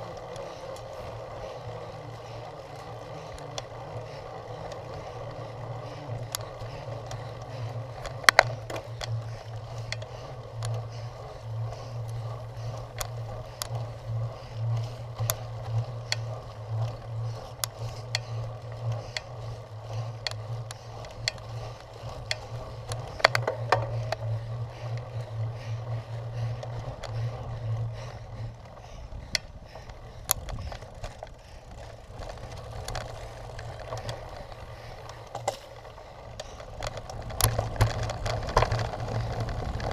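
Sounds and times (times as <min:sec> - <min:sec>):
bike rattling and knocking: 0:00.0 - 0:39.9
bike tyres rolling over rough ground: 0:00.0 - 0:39.9
low hum: 0:00.0 - 0:39.9.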